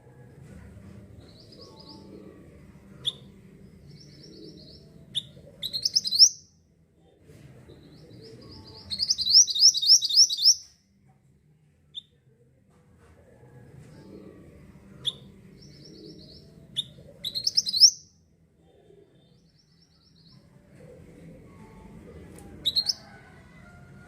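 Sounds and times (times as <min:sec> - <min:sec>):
faint low recording noise: 0:00.0 - 0:24.0
songbird trilling: 0:05.6 - 0:06.4, 0:08.9 - 0:10.7, 0:17.3 - 0:18.1.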